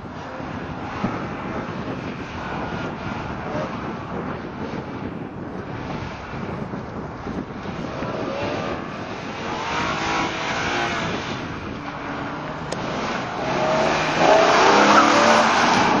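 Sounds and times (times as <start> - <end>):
car engine revving: 7.2 - 16.0.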